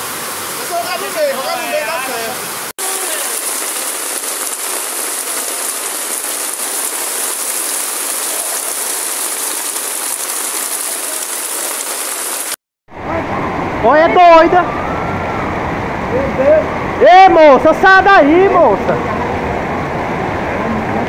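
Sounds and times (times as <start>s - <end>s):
floodwater rushing down a street: 0.0s - 15.0s
heavy rain: 0.0s - 16.7s.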